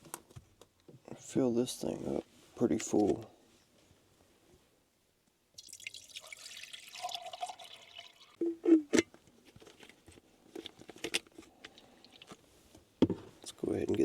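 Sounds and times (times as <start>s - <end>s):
water pouring into kettle: 5.6s - 8.4s.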